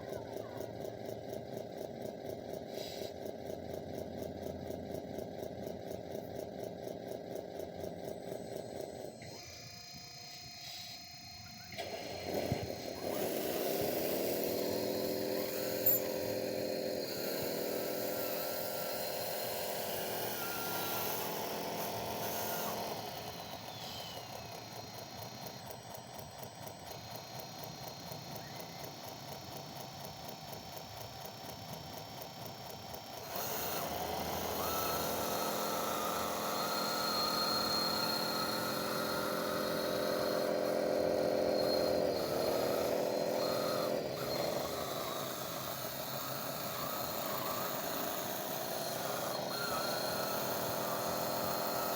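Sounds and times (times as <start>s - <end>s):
electric motor whining: 6.4s - 51.9s.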